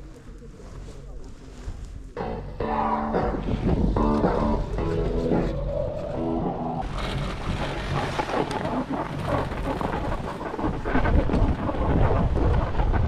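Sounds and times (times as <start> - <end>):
strong wind buffeting microphone: 0.0 - 13.0
background music: 2.2 - 10.3
sliding fast over snow: 3.9 - 13.0.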